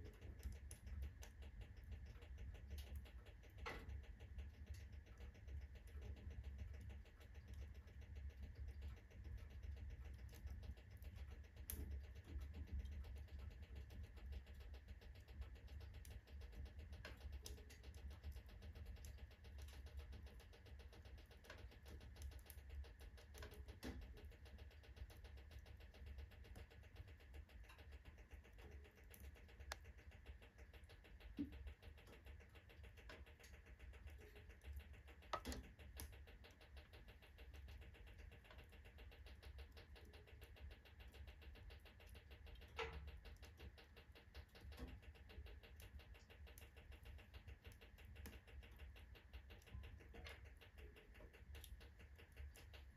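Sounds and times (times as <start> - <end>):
wood fire crackling and popping: 0.0 - 7.6, 10.1 - 18.4, 27.3 - 41.2.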